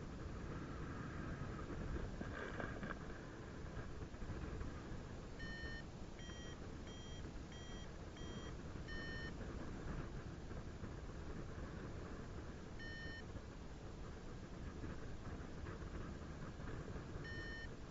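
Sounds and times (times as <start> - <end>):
variometer beeping: 5.4 - 9.4, 12.8 - 13.3, 17.2 - 17.8.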